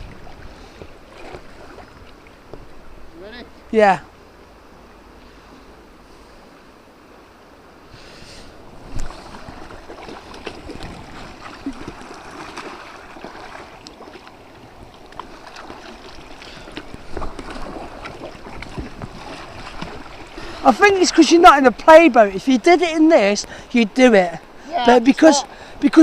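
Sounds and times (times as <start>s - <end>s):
water splashing around kayak: 0.0s - 26.0s.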